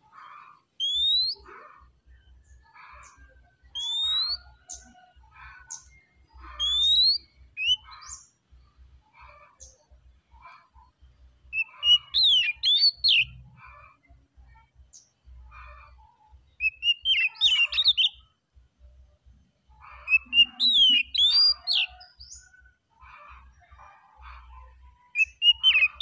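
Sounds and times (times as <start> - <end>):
bird singing whistled notes: 0.8 - 1.5, 2.2 - 5.0, 5.7 - 8.4, 11.5 - 13.4, 16.5 - 18.2, 20.0 - 22.4, 25.1 - 26.0.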